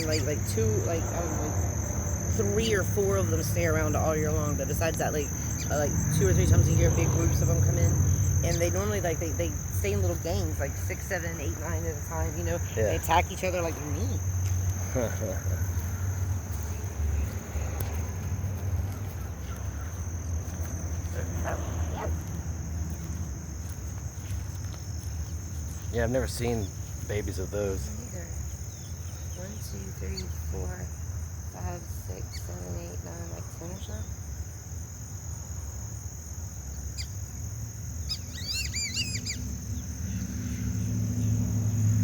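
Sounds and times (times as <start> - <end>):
low outdoor rumble: 0.0 - 34.1
crickets trilling: 0.0 - 42.0
bird whistling call: 38.1 - 39.4.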